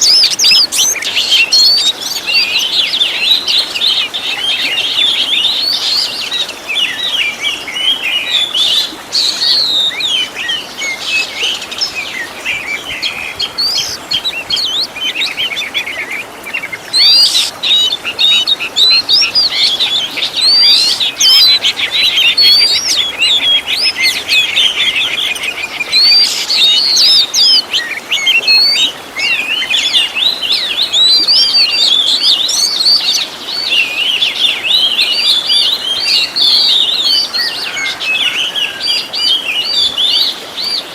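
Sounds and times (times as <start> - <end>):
bird singing whistled song: 0.0 - 40.9.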